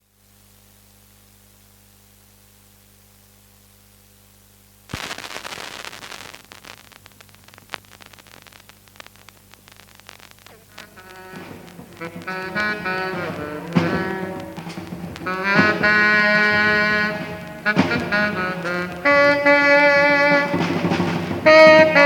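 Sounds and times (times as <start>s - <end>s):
mains hum: 0.0s - 22.0s
faint hiss: 2.9s - 22.0s
vinyl crackling and clicking: 4.9s - 22.0s.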